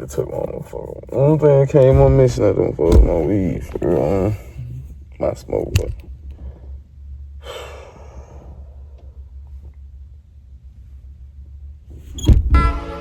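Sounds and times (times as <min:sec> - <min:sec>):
low steady rumble: 0:00.0 - 0:13.0
loud thump: 0:01.8 - 0:04.1, 0:12.2 - 0:12.9
man sighing: 0:07.4 - 0:08.5.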